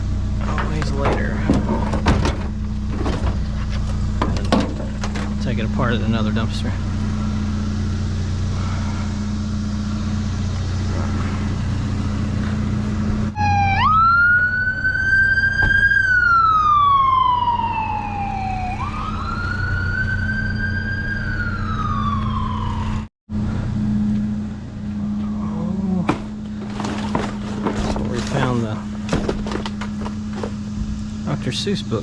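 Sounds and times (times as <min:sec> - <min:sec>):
low engine hum: 0:00.0 - 0:32.0
emergency siren wailing: 0:13.3 - 0:23.1.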